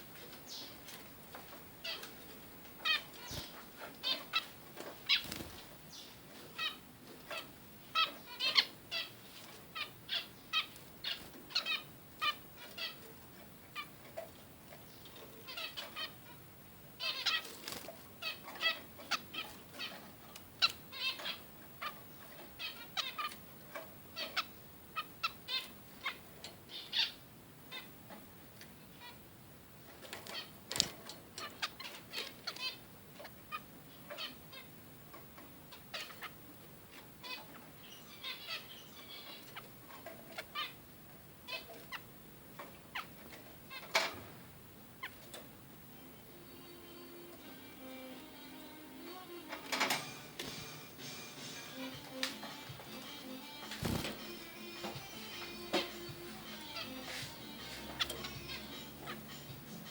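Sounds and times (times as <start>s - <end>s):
finches beeping calls: 2.8s - 27.9s, 31.4s - 36.4s, 37.2s - 40.8s, 41.5s - 44.1s, 51.7s - 59.9s.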